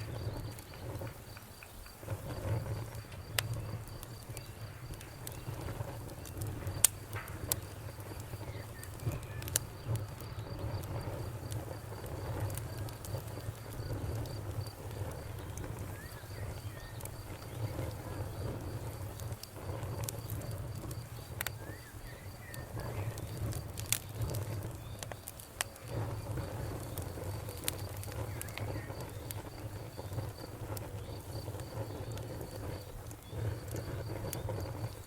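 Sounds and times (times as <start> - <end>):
fire crackles and pops: 0.0 - 35.0
fire rumbling in fireplace: 0.0 - 35.0.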